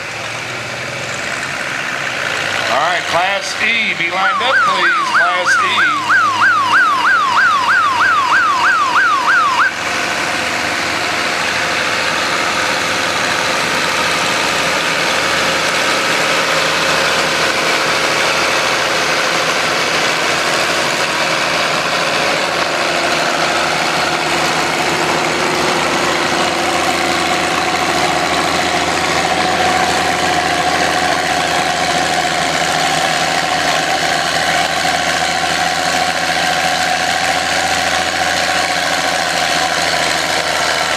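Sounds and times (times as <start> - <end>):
tractor engine running under load: 0.0 - 40.9
warbling siren-like tone: 4.0 - 9.8.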